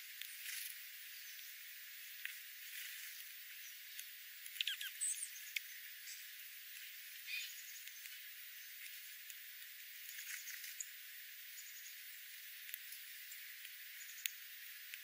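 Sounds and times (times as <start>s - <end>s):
faint steady hiss: 0.0s - 15.0s
small animal squeaky chirps: 4.5s - 5.4s, 7.2s - 7.6s.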